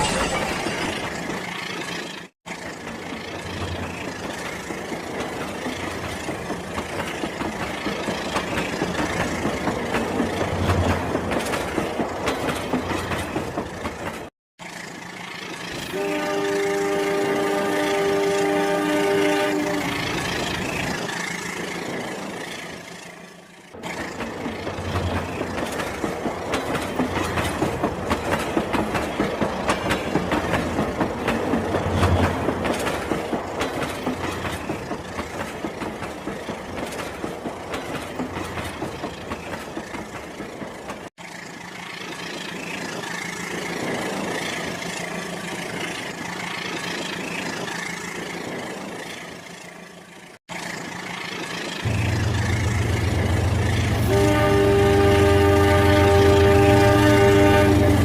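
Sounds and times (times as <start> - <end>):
toy train running on track: 38.7 - 51.9.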